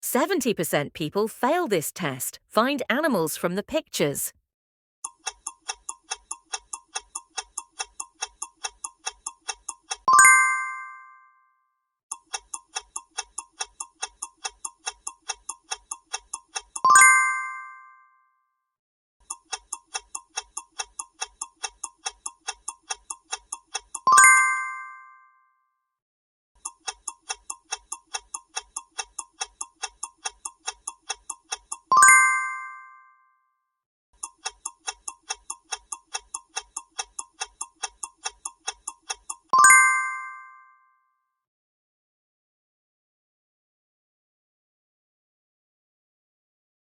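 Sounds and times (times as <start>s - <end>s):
quick clock ticks: 0.1s - 4.3s, 5.1s - 10.1s, 12.1s - 16.9s, 19.2s - 24.1s, 26.6s - 32.0s, 34.2s - 39.5s.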